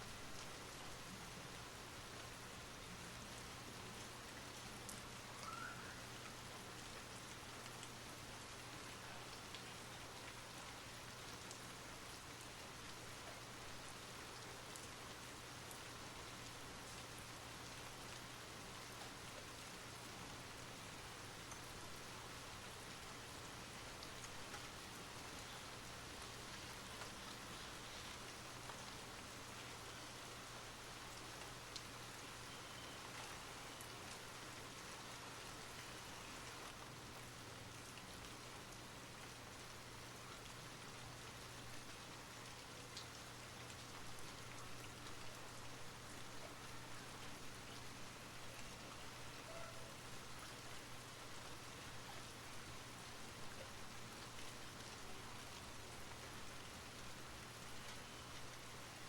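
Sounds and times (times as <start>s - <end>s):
steady rainfall: 0.0s - 59.0s
rain drop ticks: 0.3s - 0.9s, 3.1s - 19.6s, 20.2s - 22.0s, 22.6s - 49.6s.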